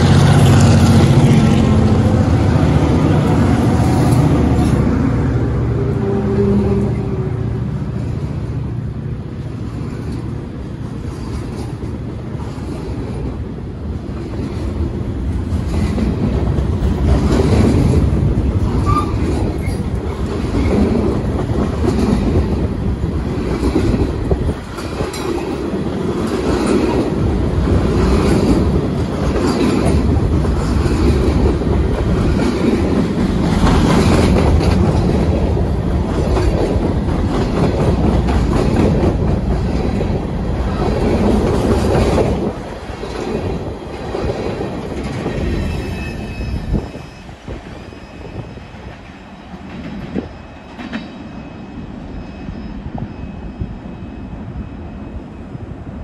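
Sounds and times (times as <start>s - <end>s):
steel wheels rumbling on rail: 0.0s - 56.0s
wheels clacking over rail joints: 9.4s - 46.8s.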